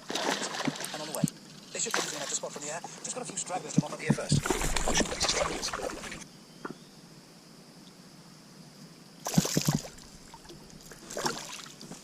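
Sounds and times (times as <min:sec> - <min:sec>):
water splashing at a kayak: 0:00.0 - 0:02.8, 0:04.1 - 0:06.2, 0:09.2 - 0:12.0
quiet river ambience: 0:00.0 - 0:12.0.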